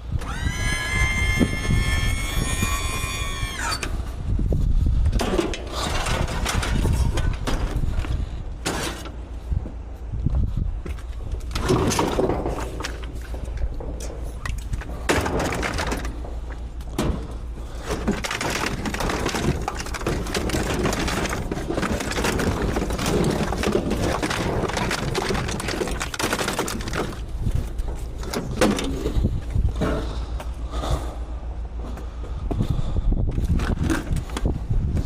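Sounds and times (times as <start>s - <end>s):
steady low rumble: 0.9s - 35.0s
scrap items clattering: 11.5s - 30.3s.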